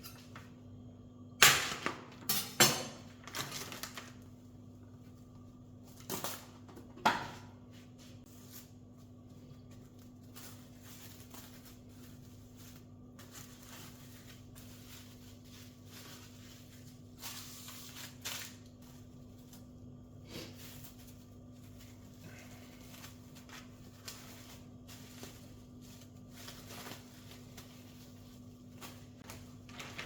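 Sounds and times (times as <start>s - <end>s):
steady low hum: 4.2s - 30.0s
rustling: 8.2s - 30.0s.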